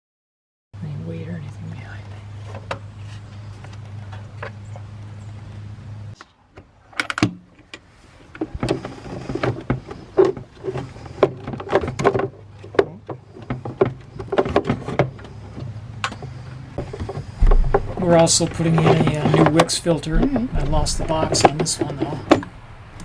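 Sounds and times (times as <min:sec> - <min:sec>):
low hum: 0:15.1 - 0:19.0, 0:19.8 - 0:23.0.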